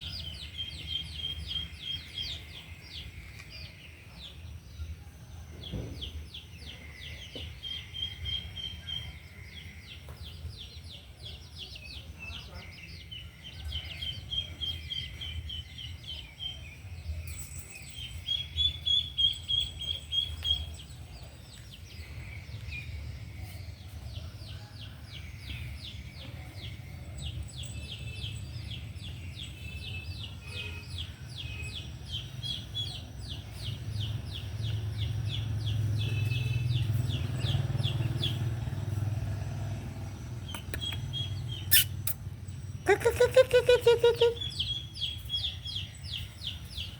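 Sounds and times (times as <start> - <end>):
high-pitched bird chirping: 5.6 - 21.0, 40.3 - 46.9.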